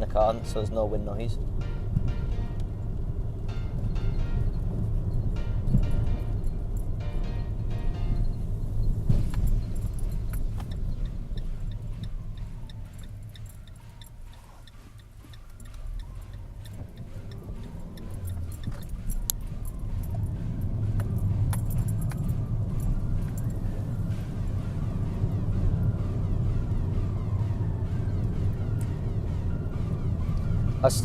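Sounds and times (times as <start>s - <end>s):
car engine and road rumble: 0.0s - 31.0s
light metallic jingling ticks: 3.7s - 24.0s.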